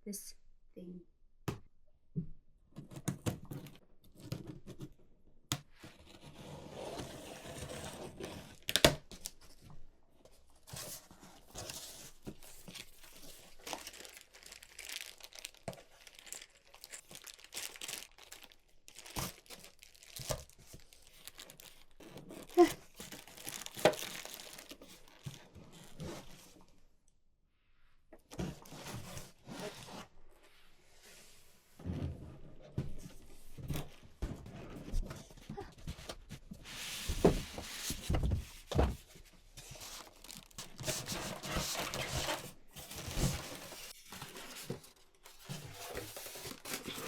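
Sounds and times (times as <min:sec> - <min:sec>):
cardboard and plastic tearing: 0:11.5 - 0:26.4, 0:39.7 - 0:47.0.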